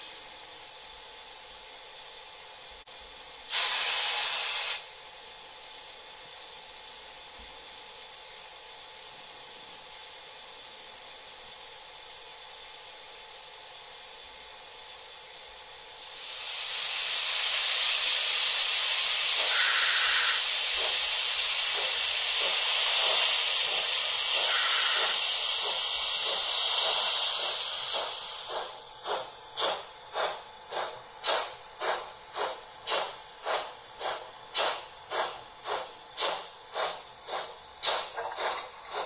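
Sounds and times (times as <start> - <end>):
steam locomotive exhaust chuffs: 3.3 - 4.9, 15.6 - 39.0
steam hiss: 3.5 - 4.9, 16.0 - 39.0.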